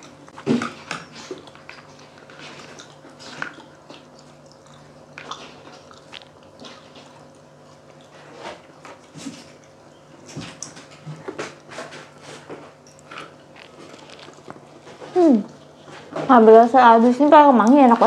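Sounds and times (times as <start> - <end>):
chewing and lip smacks: 0.0 - 16.2.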